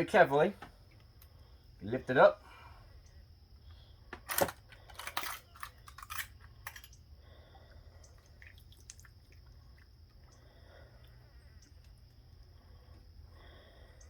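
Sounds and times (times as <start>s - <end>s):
metal parts clicking and knocking: 4.1s - 7.0s.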